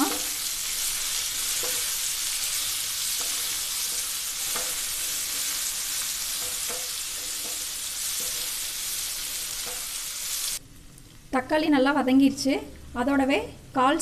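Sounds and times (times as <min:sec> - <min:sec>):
onions sizzling in frying pan: 0:00.0 - 0:10.6.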